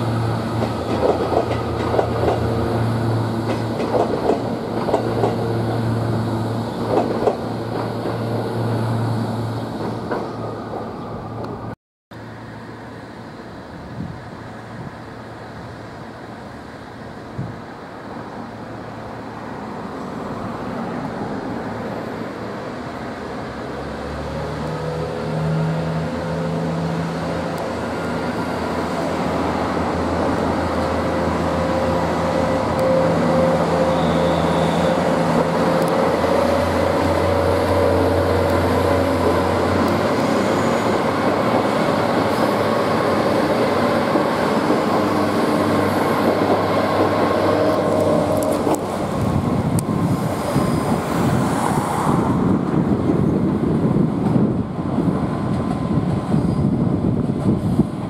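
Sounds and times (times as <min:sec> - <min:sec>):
diesel train passing: 0:00.0 - 0:58.0
train motor whine: 0:30.4 - 0:43.9.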